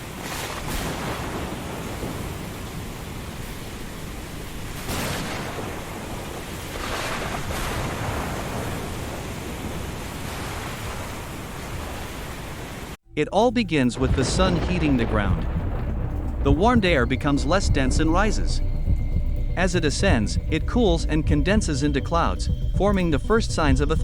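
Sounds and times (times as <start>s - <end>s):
rain hissing: 0.0s - 13.0s
wind: 0.0s - 13.0s
thunder cracks and rumbles: 0.2s - 11.1s, 14.0s - 24.0s.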